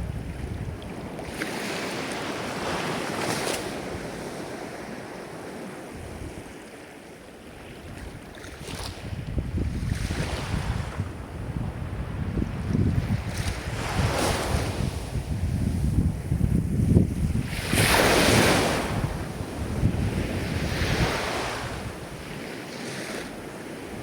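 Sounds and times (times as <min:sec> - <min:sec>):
wind buffeting microphone: 0:00.0 - 0:01.4, 0:05.9 - 0:06.6, 0:07.6 - 0:22.5
ocean waves breaking: 0:00.9 - 0:07.3, 0:17.2 - 0:24.0.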